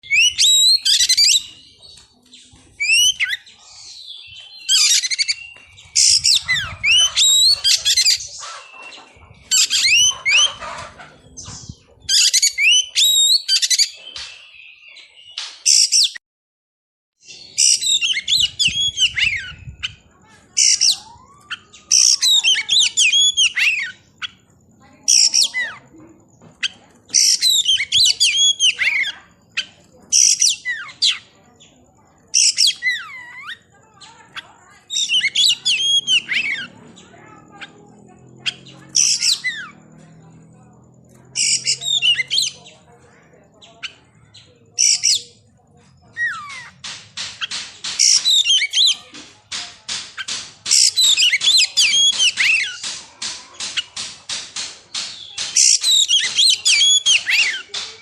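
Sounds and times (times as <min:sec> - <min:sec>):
bird singing whistled notes: 0:00.0 - 0:10.6, 0:11.6 - 0:16.2, 0:17.2 - 0:24.4, 0:26.6 - 0:31.3, 0:34.3 - 0:36.8, 0:41.3 - 0:42.8, 0:47.4 - 0:49.1, 0:54.9 - 0:57.9.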